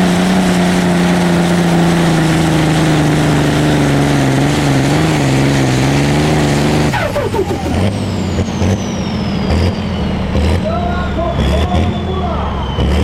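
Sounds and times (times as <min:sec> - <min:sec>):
tractor engine at full power: 0:00.0 - 0:13.0
turbo whistle falling in pitch: 0:06.9 - 0:10.2.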